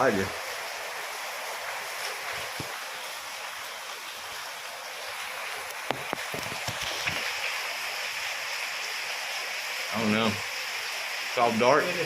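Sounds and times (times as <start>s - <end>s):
steady rain hiss: 0.0s - 12.0s
sharp drip-like taps: 2.0s - 2.8s, 5.1s - 7.6s.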